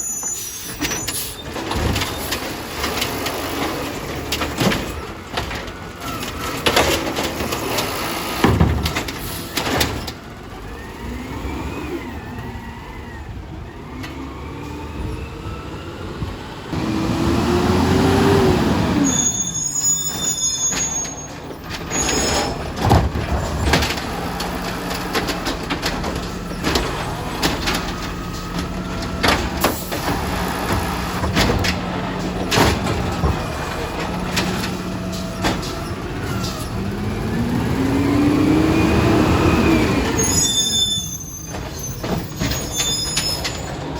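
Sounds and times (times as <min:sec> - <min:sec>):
high squeal: 0:00.0 - 0:02.4, 0:18.9 - 0:22.7, 0:38.8 - 0:43.9
knocks and clanks: 0:00.7 - 0:10.4, 0:20.0 - 0:38.3, 0:39.9 - 0:43.9
garbage truck diesel engine revving: 0:01.2 - 0:43.9.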